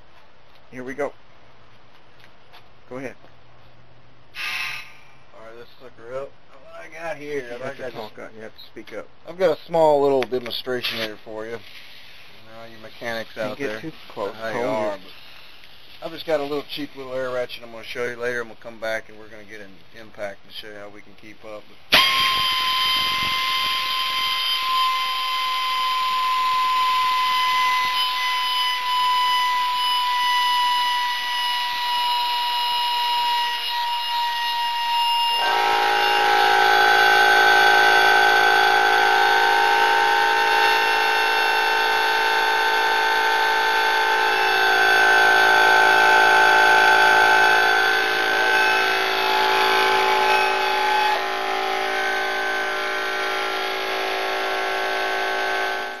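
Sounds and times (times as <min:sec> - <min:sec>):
air compressor running: 0:21.9 - 0:56.0.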